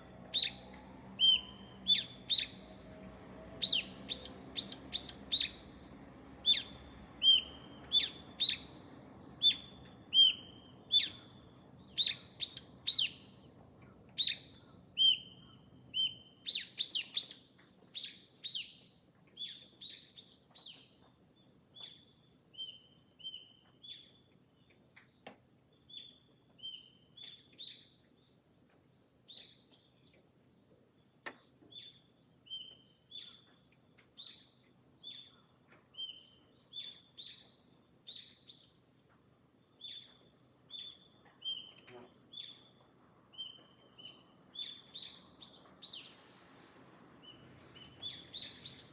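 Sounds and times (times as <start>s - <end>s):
bird chirping: 0.0s - 13.5s, 14.2s - 18.8s, 39.8s - 46.2s, 47.2s - 48.9s.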